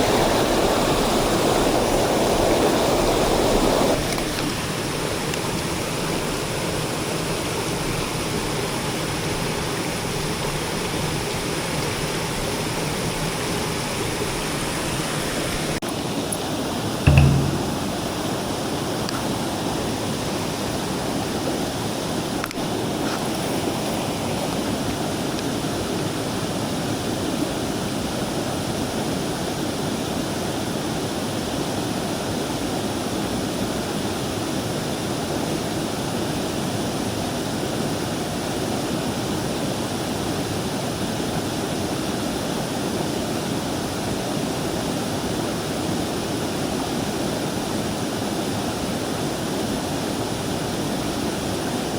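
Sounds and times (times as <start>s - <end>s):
stream water rushing: 0.0s - 4.6s.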